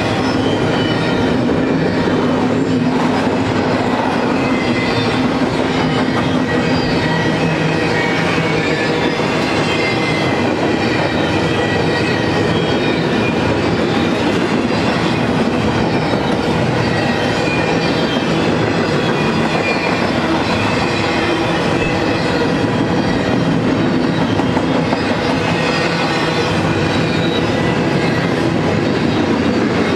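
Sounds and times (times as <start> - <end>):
freight train wheels rumbling: 0.0 - 29.9
wheel squeals: 0.0 - 29.9.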